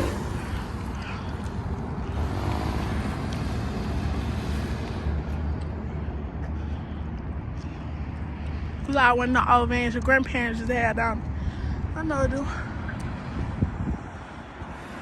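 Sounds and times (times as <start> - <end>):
truck engine hum: 0.0 - 8.4
road noise: 0.0 - 15.0.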